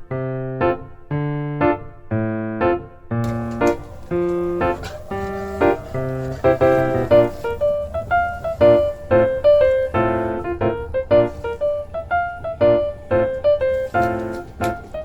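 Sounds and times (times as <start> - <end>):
bouncy piano melody: 0.0 - 15.0.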